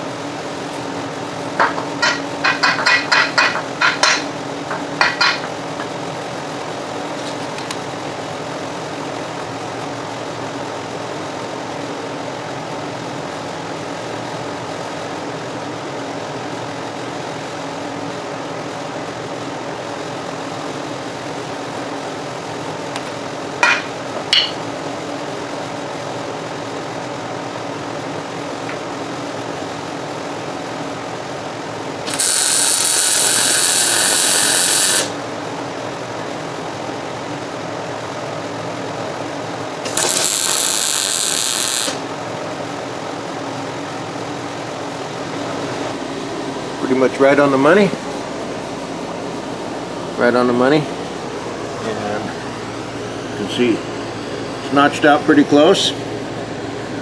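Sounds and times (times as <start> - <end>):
shop machinery humming: 0.0 - 57.0
loud hiss: 32.1 - 35.2.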